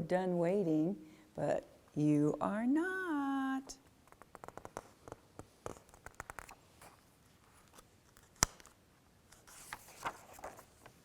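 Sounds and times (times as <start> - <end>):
paper pages rustling: 4.1 - 11.0.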